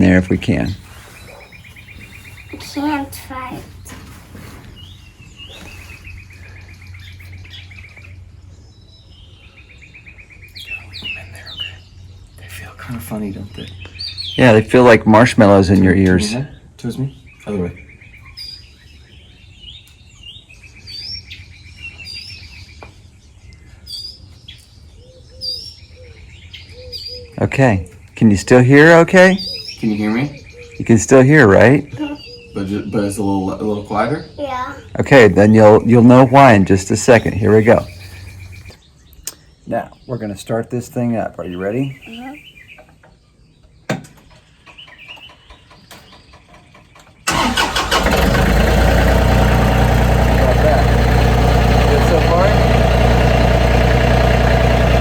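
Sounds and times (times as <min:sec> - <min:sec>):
songbirds singing: 0:00.0 - 0:55.0
tractor engine idling: 0:44.6 - 0:55.0.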